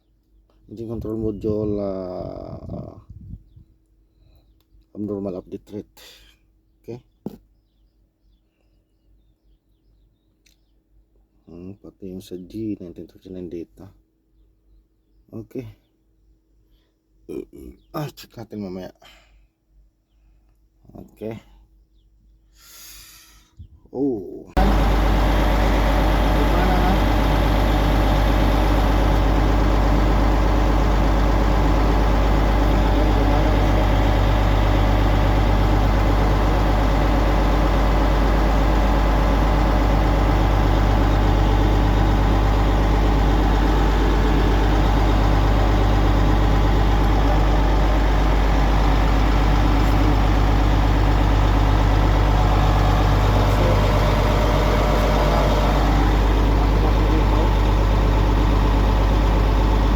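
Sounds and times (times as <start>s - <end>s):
diesel engine idling: 24.6s - 59.9s.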